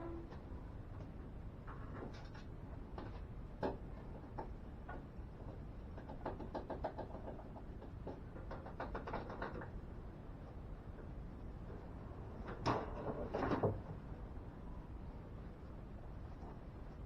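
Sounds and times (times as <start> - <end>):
steady low hum: 0.0 - 6.1, 9.6 - 17.0
objects knocking and rattling: 1.6 - 9.8, 12.4 - 14.0.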